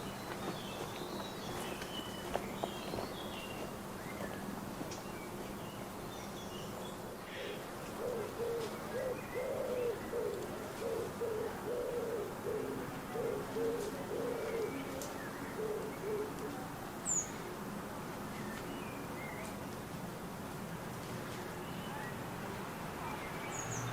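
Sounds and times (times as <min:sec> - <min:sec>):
pigeon cooing: 0:07.5 - 0:16.7.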